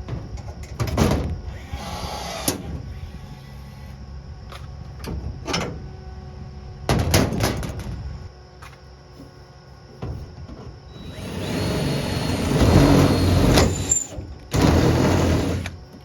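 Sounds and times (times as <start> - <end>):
knocks and clatter on car panels: 9.9 - 10.8.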